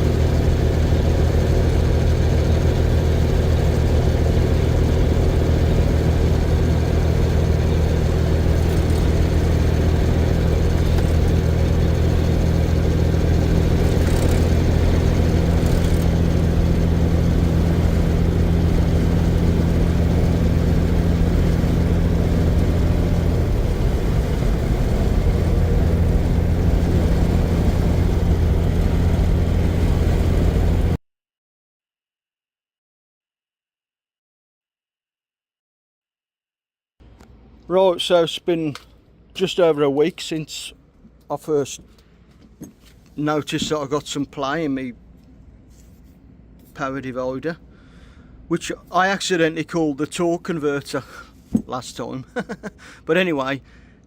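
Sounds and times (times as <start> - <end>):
truck diesel engine droning: 0.0 - 31.0.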